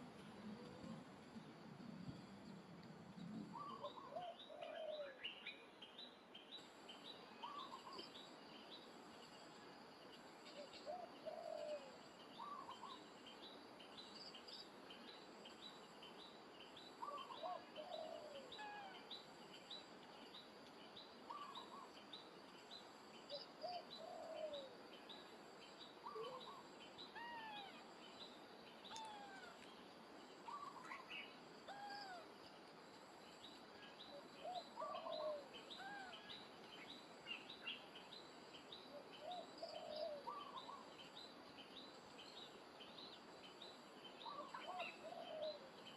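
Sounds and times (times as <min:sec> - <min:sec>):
lower arched bird calls: 0:07.4 - 0:08.0, 0:10.6 - 0:13.0, 0:17.0 - 0:19.2, 0:21.3 - 0:22.0, 0:26.0 - 0:29.7, 0:30.4 - 0:32.3, 0:33.8 - 0:37.9, 0:39.0 - 0:40.9, 0:44.2 - 0:45.7.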